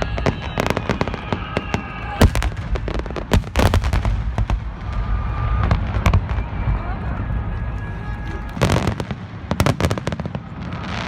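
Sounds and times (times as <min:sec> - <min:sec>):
fireworks cracking and banging: 0:00.0 - 0:11.0.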